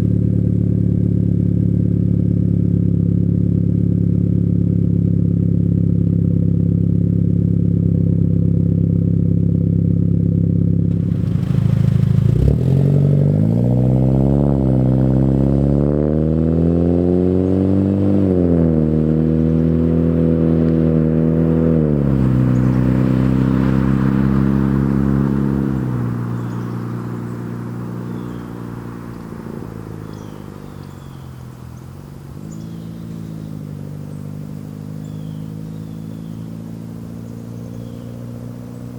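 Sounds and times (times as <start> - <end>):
car engine revving: 9.2 - 38.9.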